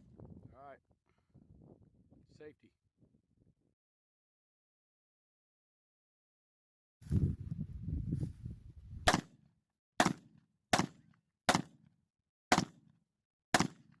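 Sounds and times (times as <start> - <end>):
gunshots: 9.1 - 9.4, 10.0 - 11.8, 12.5 - 12.9, 13.5 - 14.0.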